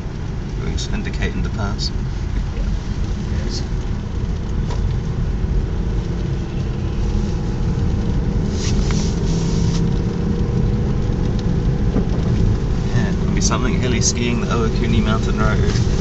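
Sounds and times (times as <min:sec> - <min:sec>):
car engine hum: 0:00.0 - 0:16.0
tyre road noise: 0:00.0 - 0:16.0
short rush of hiss: 0:08.5 - 0:09.8.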